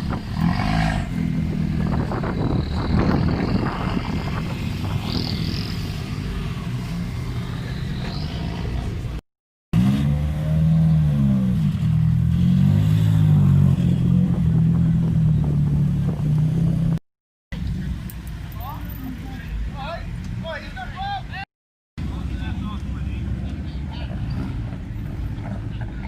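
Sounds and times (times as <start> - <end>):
car engine low rumble: 9.8 - 17.0.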